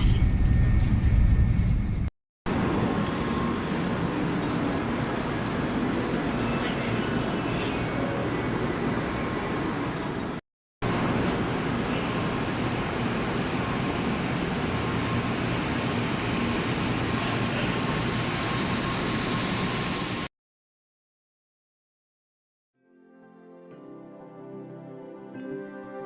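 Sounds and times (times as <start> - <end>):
train running noise: 0.0 - 20.3.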